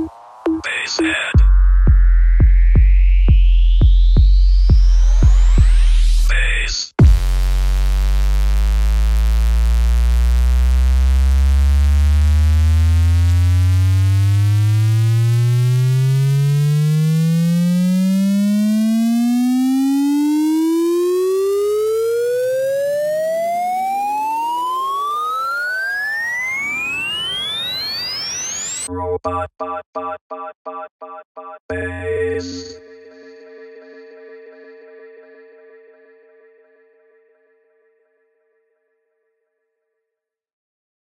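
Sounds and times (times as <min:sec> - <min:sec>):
synthesized rising tone sweep: 0:01.5 - 0:06.4, 0:07.0 - 0:28.9.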